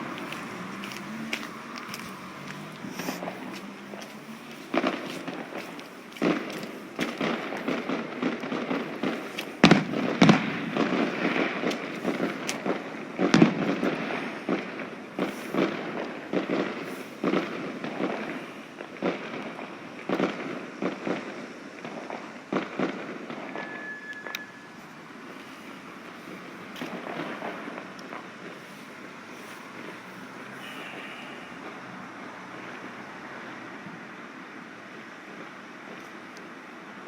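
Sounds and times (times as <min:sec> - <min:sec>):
firework whistle: 0:00.0 - 0:08.1, 0:20.4 - 0:34.0
fireworks bangs and crackles: 0:00.0 - 0:37.0.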